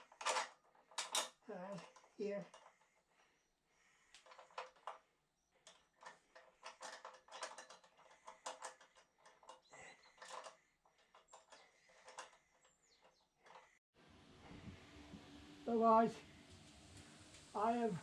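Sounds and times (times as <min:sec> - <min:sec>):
metallic clicks and taps of tools: 0:05.6 - 0:09.6.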